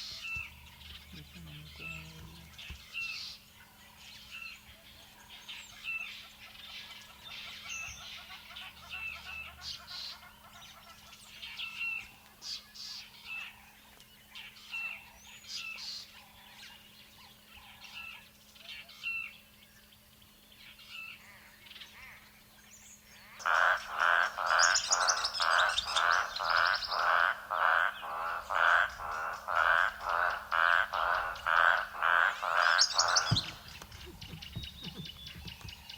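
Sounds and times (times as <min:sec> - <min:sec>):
toad croaking: 0:23.4 - 0:35.7
faint bird chirps: 0:31.1 - 0:35.9
low thump: 0:33.1 - 0:35.9.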